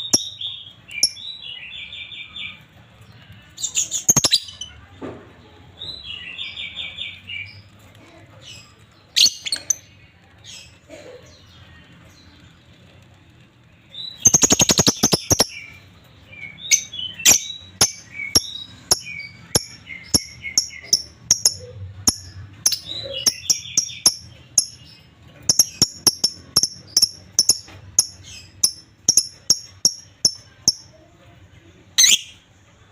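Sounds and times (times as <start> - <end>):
lovebirds chirping and chattering: 0.0 - 32.9.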